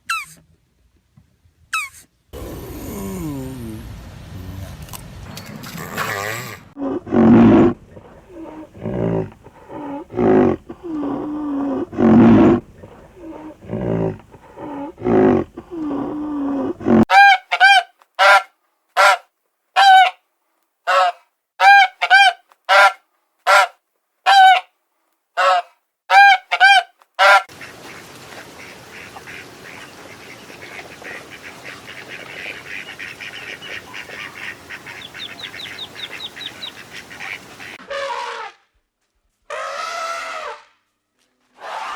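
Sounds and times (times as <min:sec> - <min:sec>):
deep animal calls: 0:01.8 - 0:03.9, 0:05.7 - 0:17.1
goose-like honks: 0:20.9 - 0:23.7, 0:25.4 - 0:27.7, 0:28.6 - 0:38.6.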